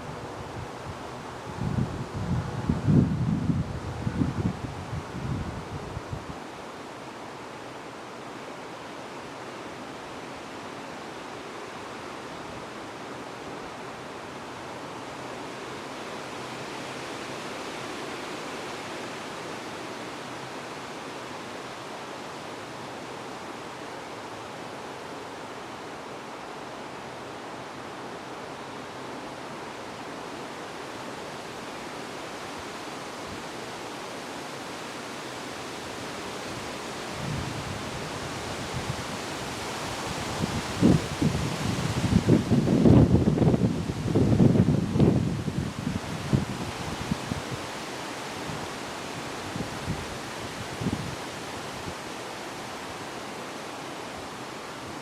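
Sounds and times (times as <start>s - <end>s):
wind blowing: 0.0s - 6.5s, 35.5s - 55.0s.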